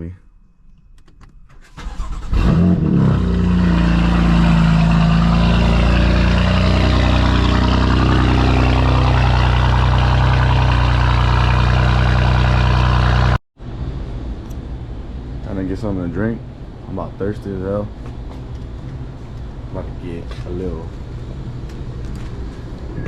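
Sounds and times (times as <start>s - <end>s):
car engine cranking: 1.0s - 13.3s
car engine revving and idling: 1.9s - 13.4s.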